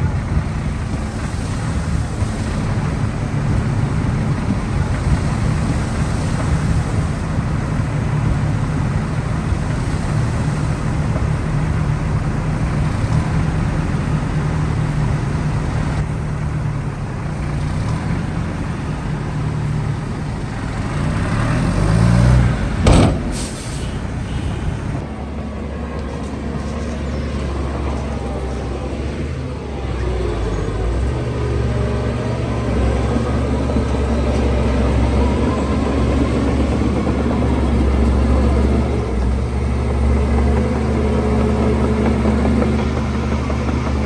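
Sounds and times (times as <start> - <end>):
heavy diesel machinery under load: 0.0 - 44.0
sharp clunk: 22.7 - 25.0
short hiss: 22.8 - 25.0.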